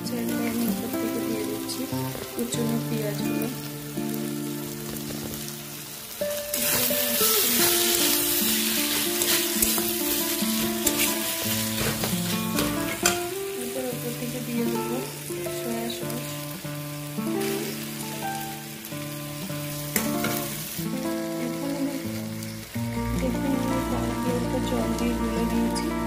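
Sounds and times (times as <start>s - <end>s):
vegetables sizzling in hot oil: 0.0s - 26.0s
spatula scraping a pan: 6.5s - 13.2s.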